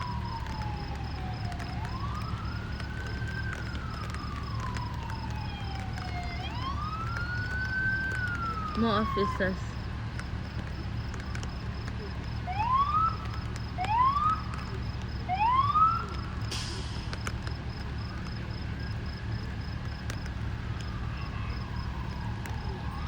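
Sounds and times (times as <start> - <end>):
police siren whoops: 0.0 - 9.8, 10.7 - 23.0.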